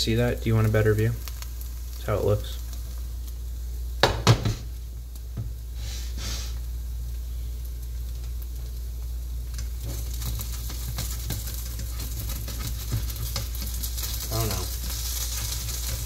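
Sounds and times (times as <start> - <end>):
pancake sizzling in a pan: 0.0 - 16.0
spatula scraping and tapping pan: 9.5 - 16.0.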